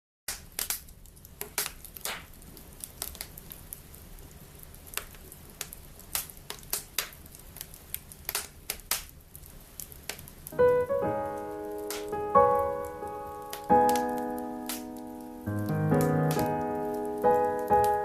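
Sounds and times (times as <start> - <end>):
wood fire crackling: 0.3 - 18.0
piano notes: 10.5 - 18.0.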